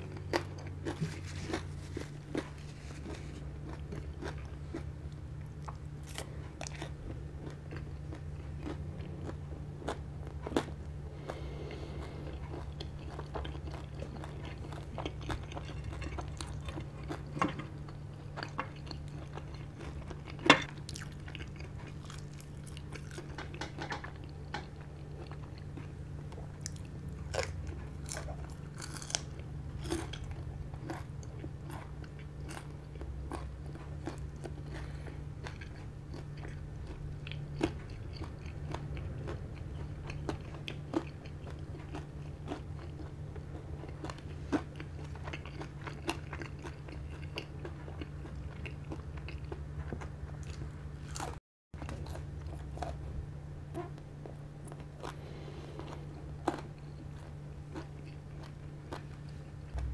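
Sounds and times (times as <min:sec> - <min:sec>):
crunching crispy pork skin: 0:00.0 - 0:04.9, 0:26.6 - 0:49.5
steady low hum: 0:00.0 - 0:59.9.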